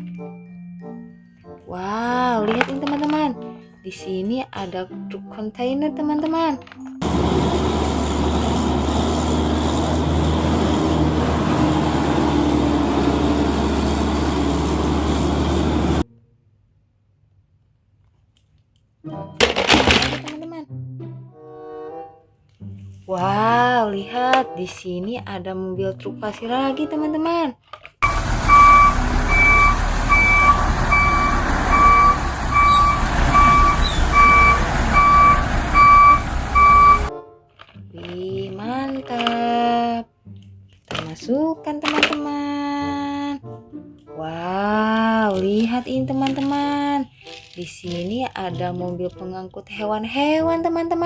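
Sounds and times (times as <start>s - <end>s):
truck engine running: 7.0s - 16.0s, 28.0s - 37.1s.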